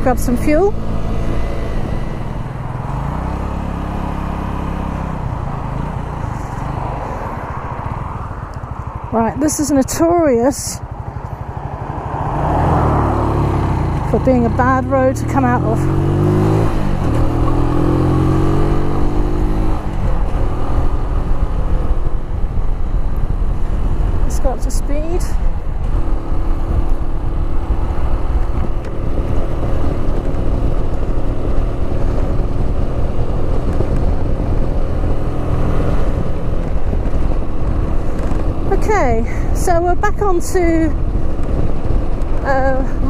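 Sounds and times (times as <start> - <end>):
motorcycle engine under throttle: 0.0 - 43.0
wind rush on microphone: 5.0 - 43.0.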